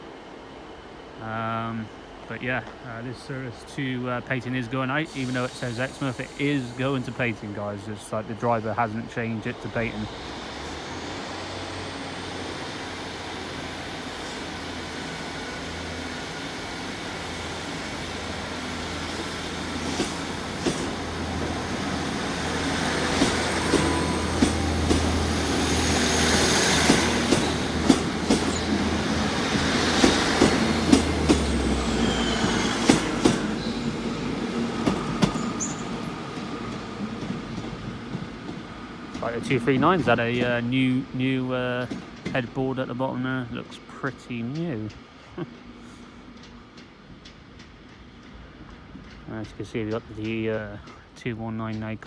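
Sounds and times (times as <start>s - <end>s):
faint wheel squeal: 31.8s - 33.8s, 35.2s - 36.1s.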